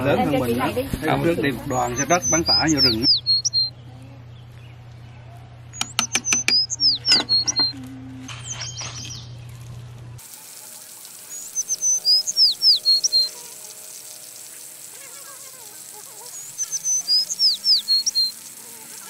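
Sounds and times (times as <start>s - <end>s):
steady low hum: 0.0s - 10.3s
songbird singing: 1.5s - 9.9s, 11.2s - 14.2s, 16.0s - 18.5s
sharp clicks: 5.8s - 7.8s.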